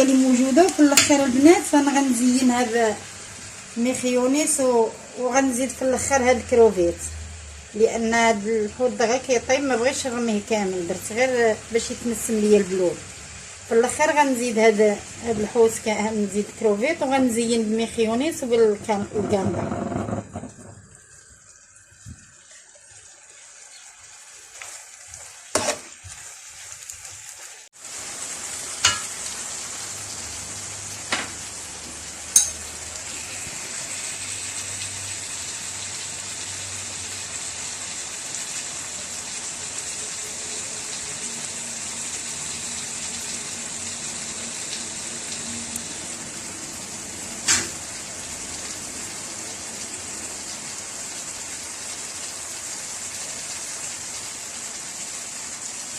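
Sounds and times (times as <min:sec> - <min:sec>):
food sizzling in a pan: 0:00.0 - 0:55.9
utensil knocking against pan: 0:28.8 - 0:29.1.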